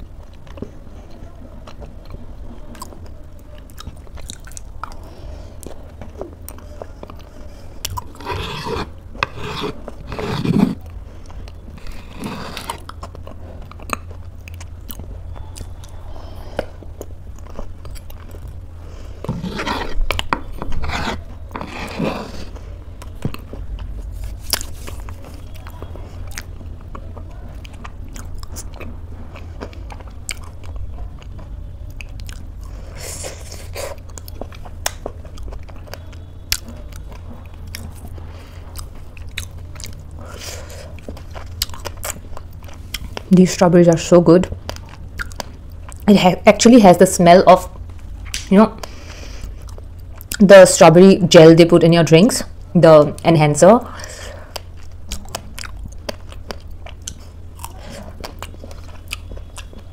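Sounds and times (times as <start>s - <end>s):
chewing oatmeal: 0.0s - 46.1s, 47.6s - 50.5s, 53.9s - 59.9s
steady low hum: 0.0s - 59.9s
metal spoon scraping wooden bowl: 8.2s - 10.8s, 19.3s - 22.6s.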